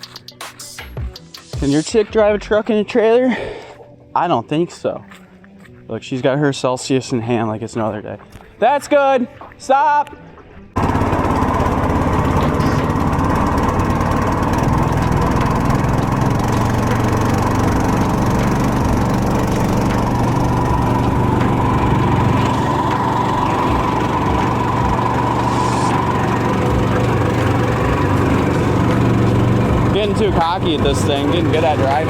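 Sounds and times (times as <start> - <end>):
boat motor running steadily: 10.7 - 32.0.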